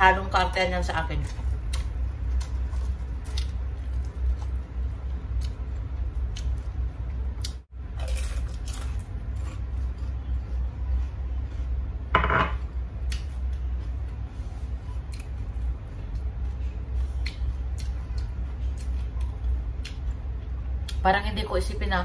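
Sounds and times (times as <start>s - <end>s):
low hum: 0.0s - 22.0s
crunchy food chewing: 1.3s - 6.8s, 7.4s - 10.6s.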